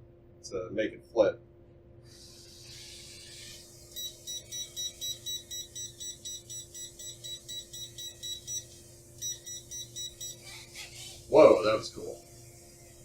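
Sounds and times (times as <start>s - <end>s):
steady low hum: 0.0s - 13.0s
transmitter beeping rapidly: 3.8s - 10.5s.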